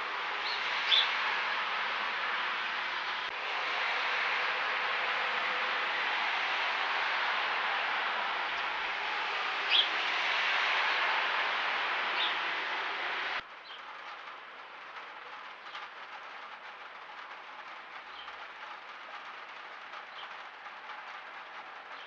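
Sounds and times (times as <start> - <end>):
microphone hiss: 0.0 - 15.7.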